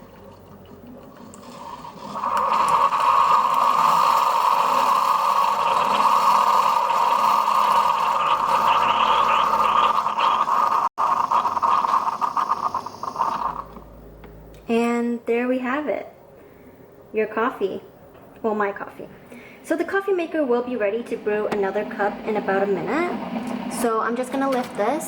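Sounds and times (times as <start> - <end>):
coffee maker pump hissing: 1.1 - 13.8.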